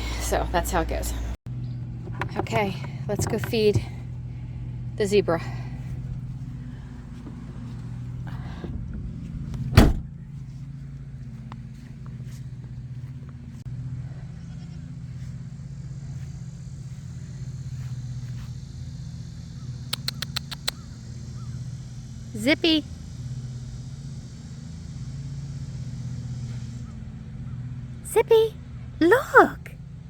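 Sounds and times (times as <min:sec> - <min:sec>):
engine humming: 0:00.0 - 0:30.0
light clicks: 0:19.9 - 0:20.8.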